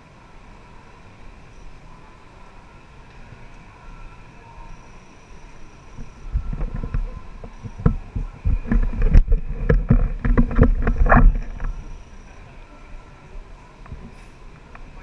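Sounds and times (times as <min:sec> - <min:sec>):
thumps and knocks on microphone: 0:06.4 - 0:11.8.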